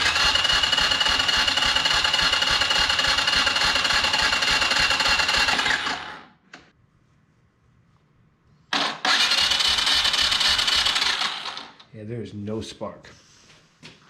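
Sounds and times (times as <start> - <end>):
electric starter cranking engine: 0.0 - 6.3, 8.7 - 11.8.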